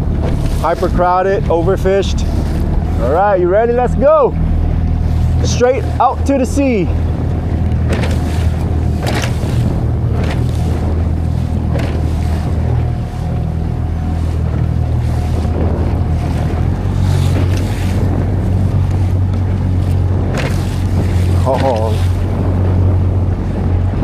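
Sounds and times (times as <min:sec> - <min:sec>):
outboard motor running: 0:00.0 - 0:24.0
wind buffeting microphone: 0:00.0 - 0:24.0.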